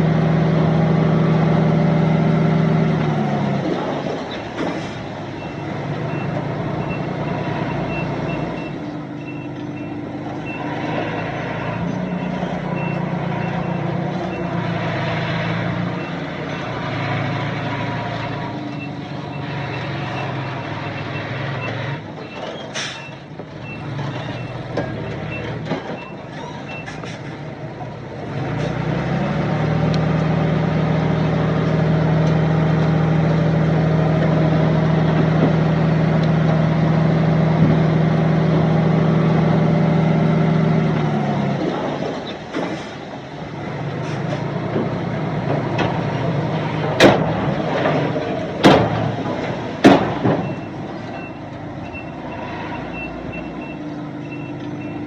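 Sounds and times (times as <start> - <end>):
heavy diesel engine revving: 0.0 - 55.0
reversing beeper: 5.4 - 14.6, 50.4 - 55.0
sharp loud bangs: 48.6 - 49.1, 49.8 - 50.5.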